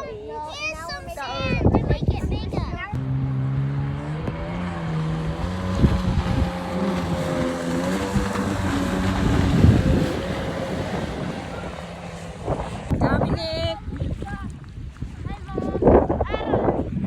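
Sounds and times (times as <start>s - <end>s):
wind on microphone: 0.0s - 17.0s
engine running: 2.9s - 13.3s.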